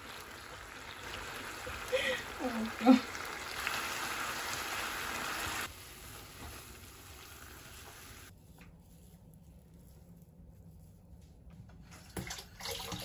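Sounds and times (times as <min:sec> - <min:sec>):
food sizzling in frying pan: 0:00.0 - 0:08.3.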